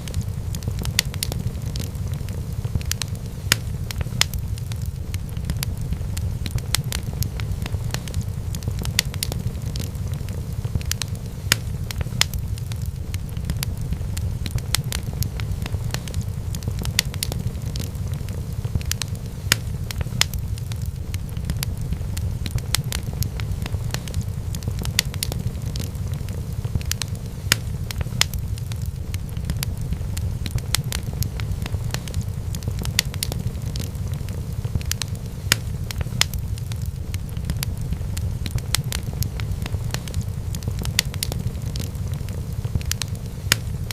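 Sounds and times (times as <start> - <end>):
wood fire crackling and popping: 0.0 - 43.9.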